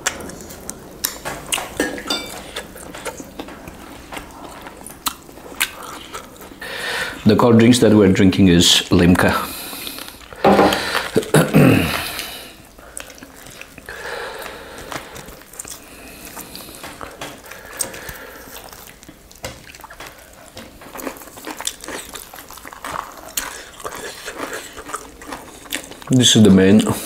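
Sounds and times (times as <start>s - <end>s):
wet chewing and lip smacking: 0.0s - 7.2s, 12.0s - 26.2s
meat being torn: 14.4s - 26.2s.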